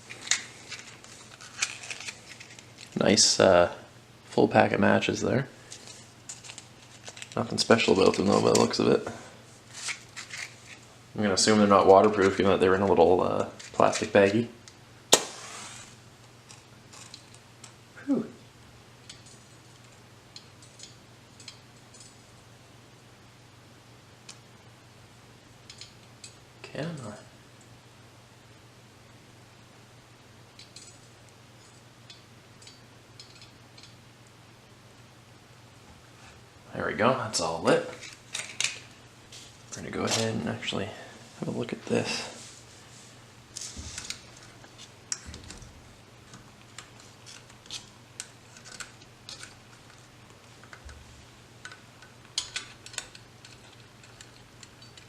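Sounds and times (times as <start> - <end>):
packaging clicks and rustles: 0.1 - 3.0, 5.7 - 7.5.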